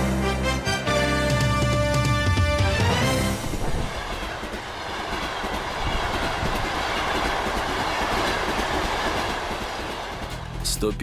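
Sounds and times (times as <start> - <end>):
train wheels rushing on rails: 2.9 - 11.0.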